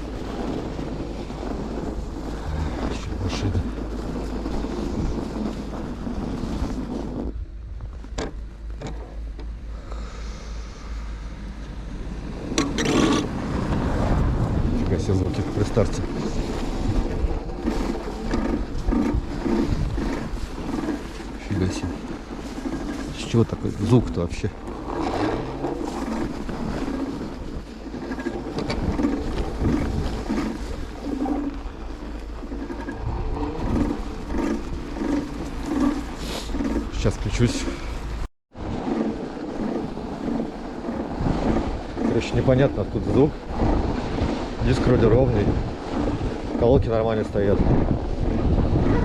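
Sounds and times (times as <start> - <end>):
uneven rubbing from wheel: 0.0 - 7.4, 12.6 - 42.4
wind rushing over microphone: 0.0 - 8.6, 9.2 - 49.0.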